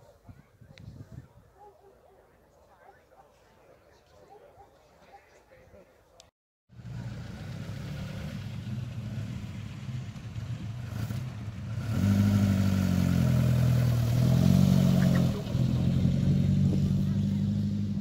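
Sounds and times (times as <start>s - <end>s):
car engine driving past: 6.7s - 18.0s.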